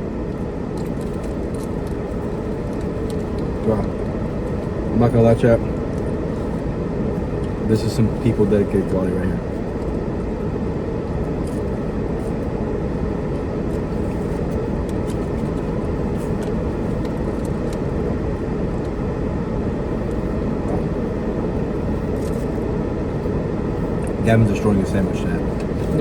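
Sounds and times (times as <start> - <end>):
low rumble inside car: 0.0 - 26.0.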